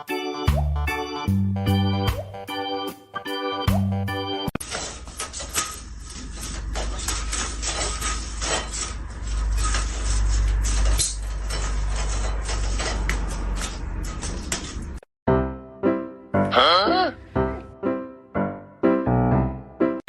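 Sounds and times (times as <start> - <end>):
clattering and knocking: 4.6 - 15.0.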